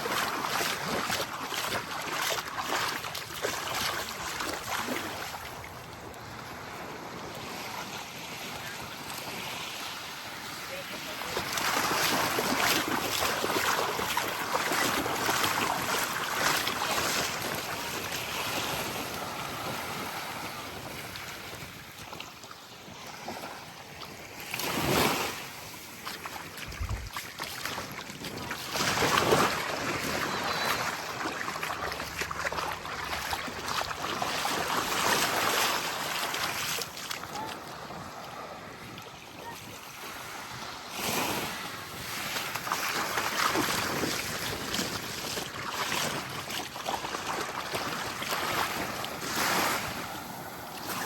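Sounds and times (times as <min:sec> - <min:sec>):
small waves lapping on shore: 0:00.0 - 0:51.0
wind buffeting microphone: 0:26.6 - 0:31.2.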